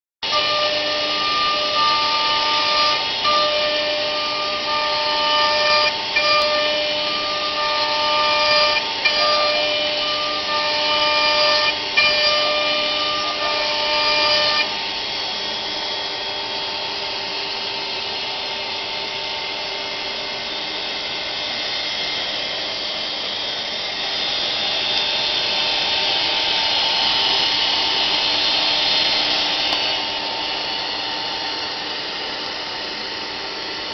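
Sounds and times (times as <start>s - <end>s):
router spindle whine: 0.2s - 33.9s
stop-start motor tones: 0.3s - 14.8s.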